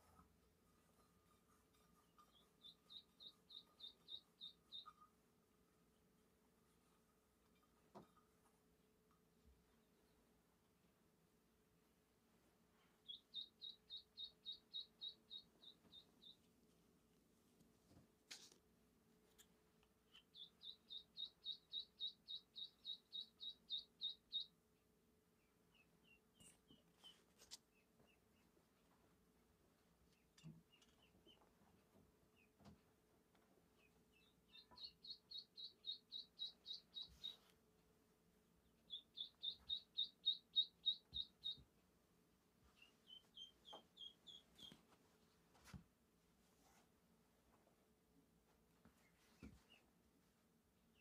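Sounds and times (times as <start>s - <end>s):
bird chirping rapidly: 2.6s - 4.9s, 13.0s - 16.4s, 20.1s - 24.5s, 34.5s - 37.4s, 38.9s - 41.6s, 42.8s - 44.8s.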